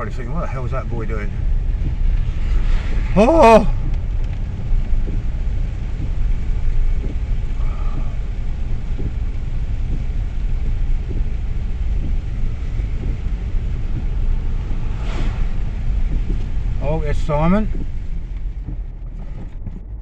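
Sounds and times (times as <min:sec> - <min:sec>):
car driving through water: 0:00.0 - 0:20.0.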